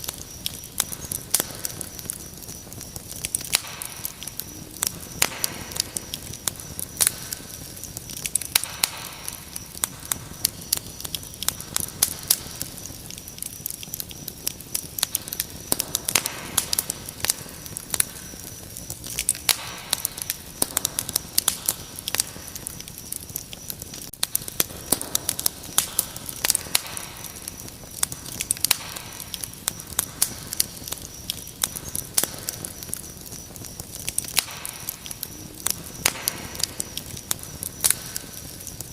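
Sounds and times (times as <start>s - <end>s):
cricket trill: 0.0s - 38.9s
wood fire crackling and popping: 0.0s - 38.9s.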